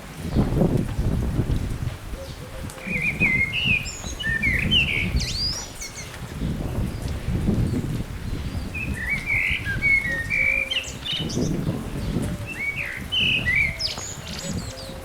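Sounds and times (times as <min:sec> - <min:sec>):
songbird chirping and whistling: 0:02.3 - 0:06.1, 0:08.6 - 0:11.6, 0:12.4 - 0:15.0.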